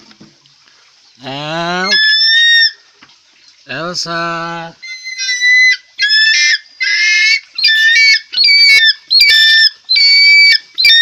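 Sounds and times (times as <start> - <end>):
eagle whistling screams: 1.8 - 2.8, 4.8 - 11.0.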